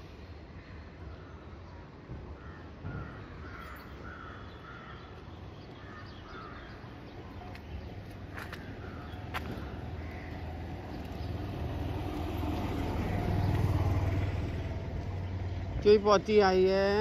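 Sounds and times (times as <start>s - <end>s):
low rumble of street noise: 0.0s - 17.0s
bird calling: 2.4s - 11.4s.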